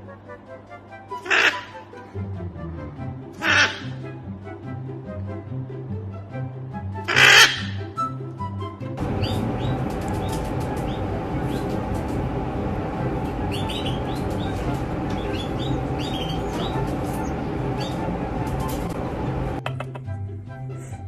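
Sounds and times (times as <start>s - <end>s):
background music: 0.0s - 21.0s
birds chirping: 1.2s - 1.7s, 3.4s - 4.0s, 7.1s - 7.7s, 9.0s - 19.7s.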